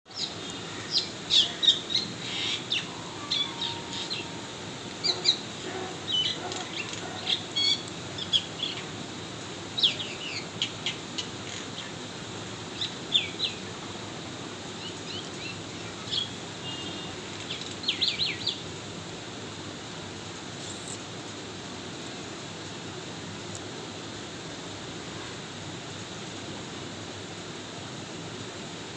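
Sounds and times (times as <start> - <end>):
birds chirping: 0.1 - 9.0, 14.8 - 18.6.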